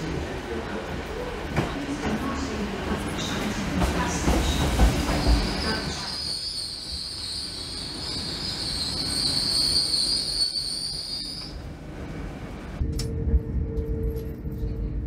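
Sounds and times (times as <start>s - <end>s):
train squealing: 5.0s - 11.7s
low rumble: 12.0s - 15.0s.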